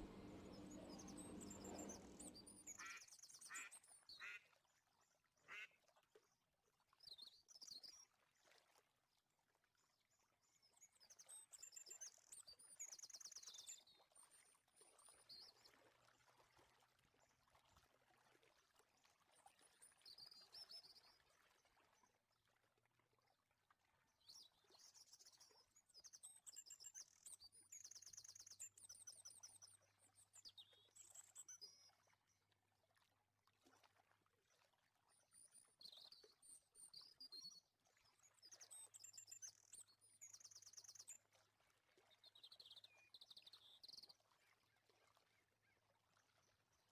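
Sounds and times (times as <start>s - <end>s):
faint bird chirps: 0.0s - 4.4s.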